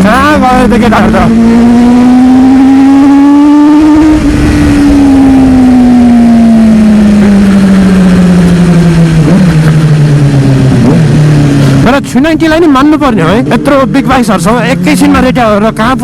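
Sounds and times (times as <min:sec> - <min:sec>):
wind noise on microphone: 0:00.0 - 0:11.9
motorcycle engine revving: 0:00.0 - 0:16.0.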